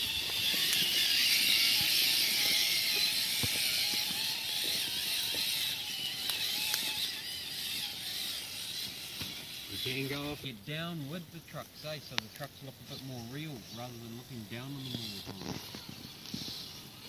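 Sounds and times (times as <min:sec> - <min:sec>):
high-pitched buzz: 0:00.0 - 0:17.0
small electric motor whining: 0:00.0 - 0:17.0
scattered clicks: 0:05.4 - 0:07.2, 0:12.1 - 0:12.5.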